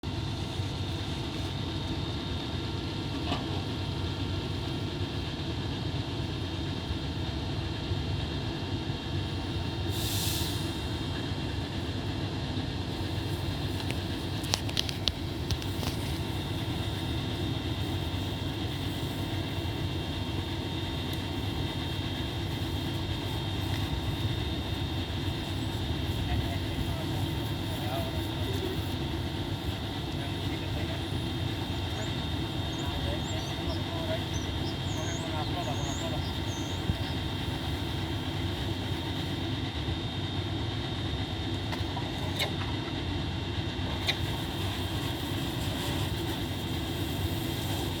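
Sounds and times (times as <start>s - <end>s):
machinery rumble and hum: 0.0s - 48.0s
brief hiss: 9.9s - 11.1s.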